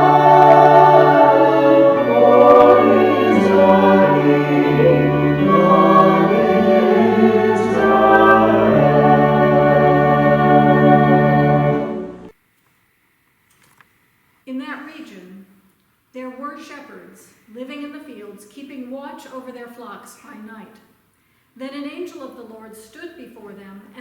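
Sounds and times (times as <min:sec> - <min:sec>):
choir singing a hymn: 0:00.0 - 0:12.3
instrumental accompaniment: 0:00.0 - 0:12.3.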